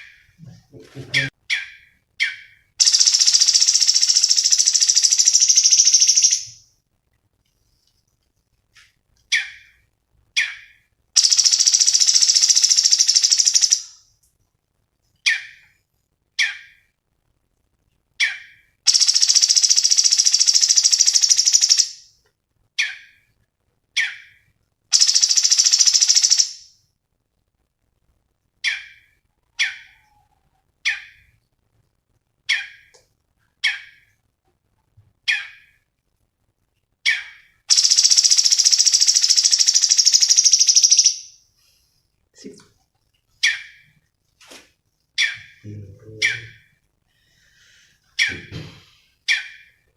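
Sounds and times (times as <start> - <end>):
songbird chirping: 0.0 - 6.7, 7.4 - 14.1, 15.0 - 17.0, 17.9 - 26.8, 28.5 - 31.6, 32.4 - 34.3, 34.9 - 36.0, 36.9 - 44.2, 44.9 - 49.9
bird buzzing rattles: 2.8 - 6.5, 11.2 - 13.8, 18.9 - 22.0, 25.0 - 26.6, 37.7 - 41.2.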